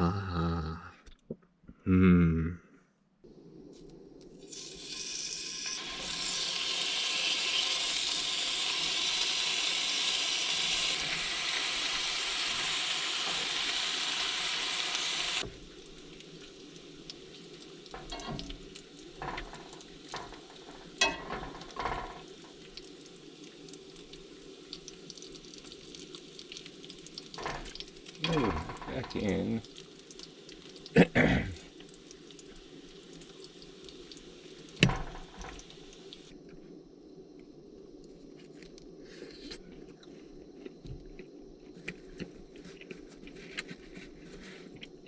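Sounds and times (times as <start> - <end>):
loud hissing sizzle: 3.3 - 36.4.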